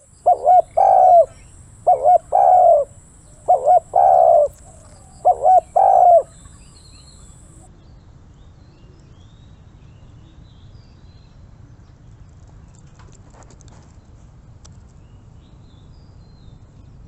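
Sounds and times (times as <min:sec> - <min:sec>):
dove cooing: 0:00.0 - 0:07.6.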